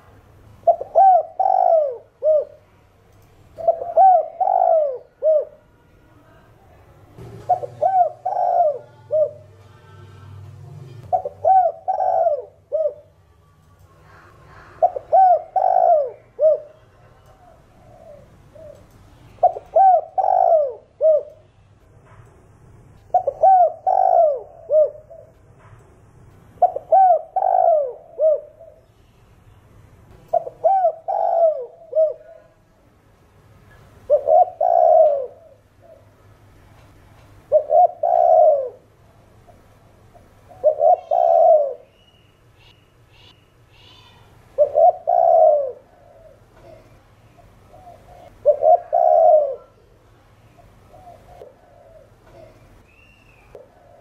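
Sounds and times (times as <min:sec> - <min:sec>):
dove cooing: 0:00.6 - 0:02.7, 0:03.6 - 0:05.6, 0:07.2 - 0:10.4, 0:11.1 - 0:13.2, 0:14.0 - 0:21.4, 0:23.1 - 0:25.4, 0:26.6 - 0:28.9, 0:30.3 - 0:32.6, 0:34.0 - 0:36.2, 0:37.4 - 0:38.9, 0:40.1 - 0:41.9, 0:43.9 - 0:50.0, 0:50.6 - 0:52.8, 0:53.4 - 0:54.0.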